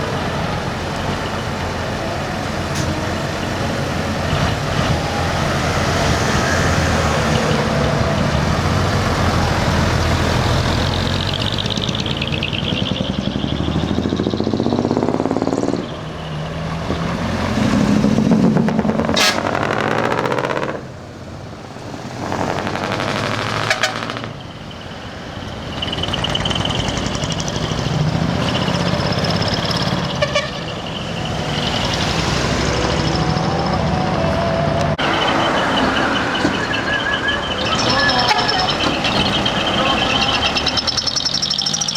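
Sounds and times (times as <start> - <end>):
truck horn notes: 0.0 - 11.2, 18.6 - 20.9, 22.3 - 24.6, 29.9 - 40.7
diesel truck engines revving: 0.0 - 41.9.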